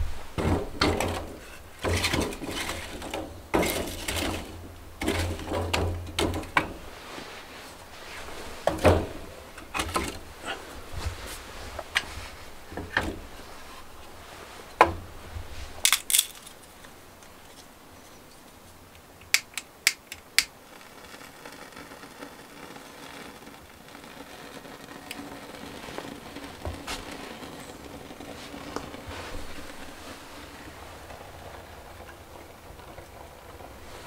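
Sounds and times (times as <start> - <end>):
objects knocking and clicking: 0.4 - 6.8, 15.8 - 16.7, 19.0 - 30.0.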